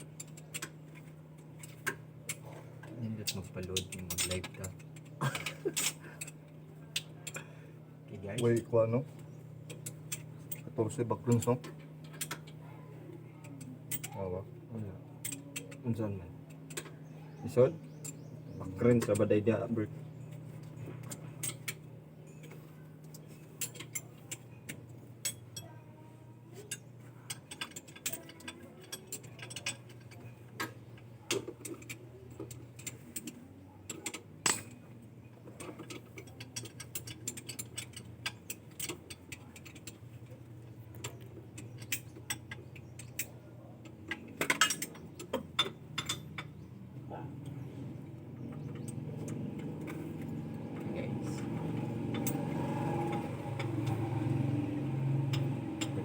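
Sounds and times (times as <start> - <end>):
steady low hum: 0.0 - 56.0
metal hand tools clinking: 26.6 - 34.9, 44.1 - 46.5.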